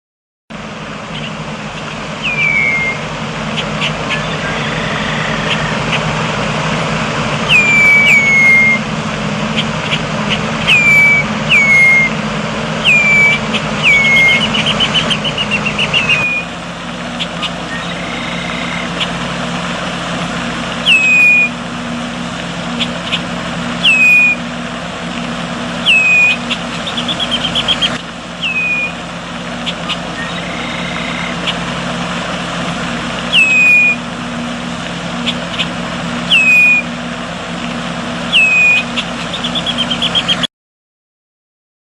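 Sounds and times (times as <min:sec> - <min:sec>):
steady low hum: 0:00.5 - 0:40.4
bird whistled calls: 0:01.1 - 0:06.1, 0:07.4 - 0:08.9, 0:09.5 - 0:12.2, 0:12.8 - 0:16.6, 0:17.2 - 0:19.2, 0:20.8 - 0:21.6, 0:22.7 - 0:24.5, 0:25.8 - 0:31.7, 0:33.3 - 0:34.1, 0:35.2 - 0:37.0, 0:38.3 - 0:40.5
bird chattering trills: 0:01.1 - 0:06.2, 0:07.5 - 0:08.8, 0:09.4 - 0:12.1, 0:12.8 - 0:19.2, 0:20.8 - 0:21.5, 0:22.7 - 0:24.4, 0:25.8 - 0:31.7, 0:33.3 - 0:34.0, 0:35.2 - 0:36.9, 0:38.3 - 0:40.5.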